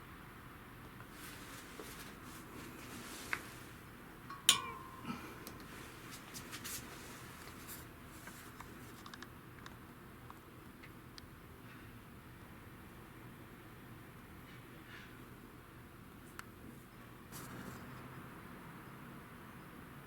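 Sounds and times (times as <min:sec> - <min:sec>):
light taps and rustles: 0:00.9 - 0:09.8
metal clink with ringing tone: 0:04.3 - 0:05.6.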